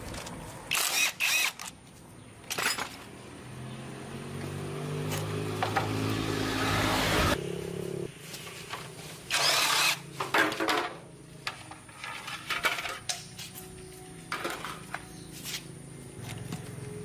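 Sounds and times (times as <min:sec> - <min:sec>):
metal tools clinking and knocking: 0:02.5 - 0:03.1, 0:10.2 - 0:13.6.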